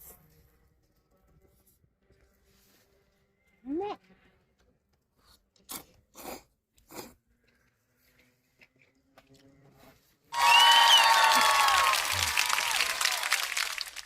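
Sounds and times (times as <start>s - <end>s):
person chewing food: 5.6s - 9.5s.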